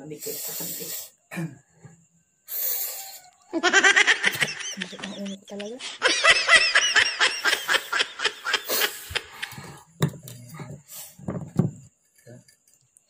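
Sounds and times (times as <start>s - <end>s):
person giggling: 3.5s - 9.8s.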